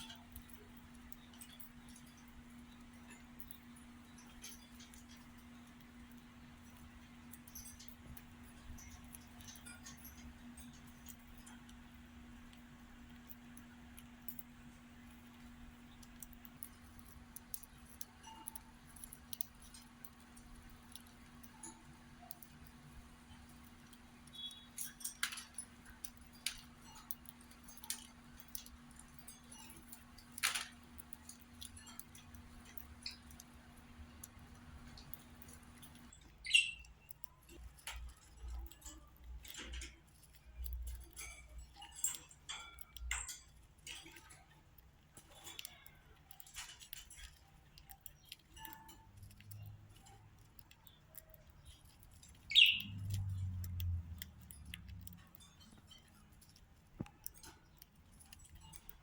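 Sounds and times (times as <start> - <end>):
bird moving in cage rattles: 16.6 - 36.2, 37.4 - 44.5
budgerigar chirp: 36.5 - 36.9, 52.5 - 53.0.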